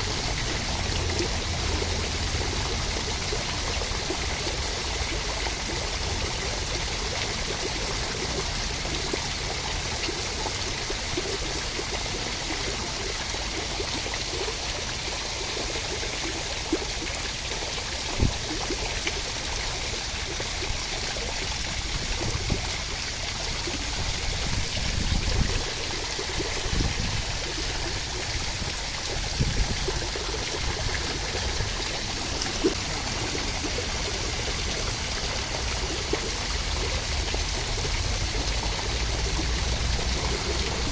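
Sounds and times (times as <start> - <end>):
steady rain: 0.0 - 7.0, 26.7 - 40.9.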